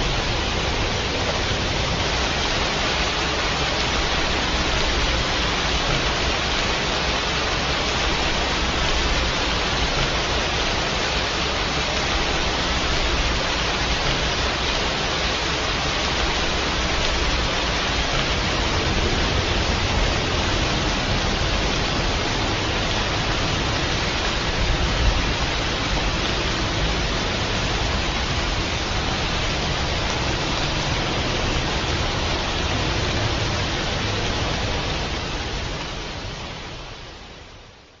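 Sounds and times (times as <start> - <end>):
heavy rain: 0.0 - 38.0.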